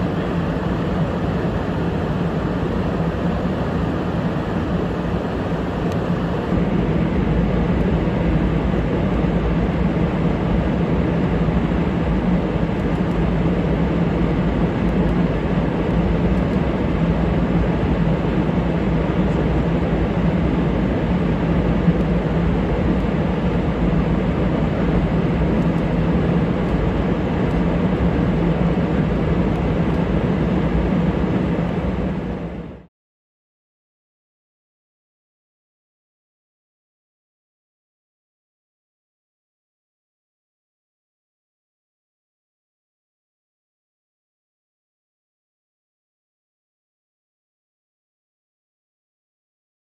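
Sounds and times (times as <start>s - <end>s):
jet engine rumbling: 0.0s - 32.9s.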